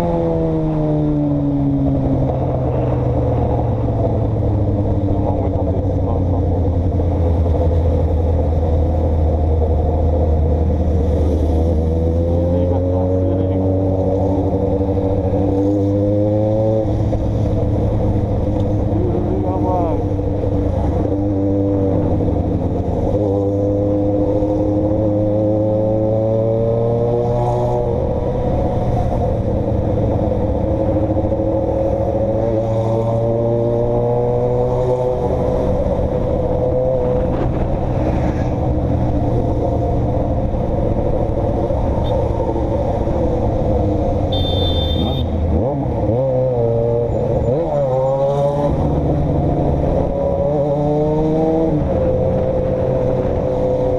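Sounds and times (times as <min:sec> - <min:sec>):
car engine revving: 0:00.0 - 0:53.9
road noise: 0:00.0 - 0:53.9
high beep: 0:44.3 - 0:45.3.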